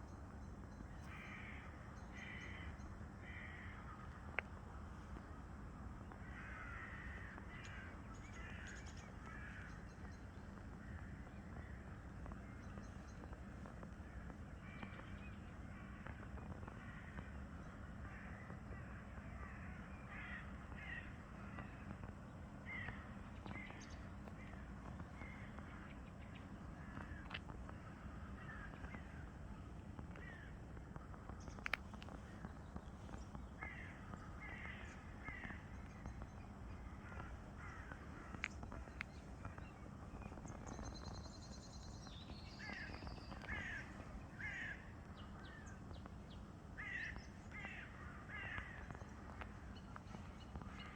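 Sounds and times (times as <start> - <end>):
low background rumble: 0.0 - 50.9
crows cawing: 1.1 - 4.4, 6.2 - 9.8, 16.8 - 17.3, 18.0 - 21.9, 22.6 - 23.7, 26.8 - 29.3, 30.2 - 30.6, 33.6 - 35.7, 36.8 - 39.0, 42.6 - 45.7, 46.8 - 49.8.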